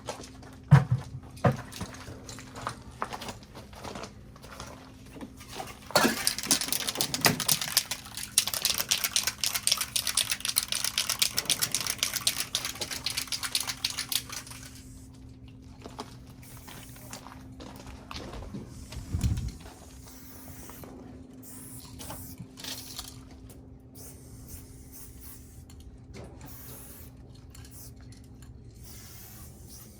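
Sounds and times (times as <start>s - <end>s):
fast clicking rattle: 6.2s - 14.7s
hiss: 28.8s - 29.9s.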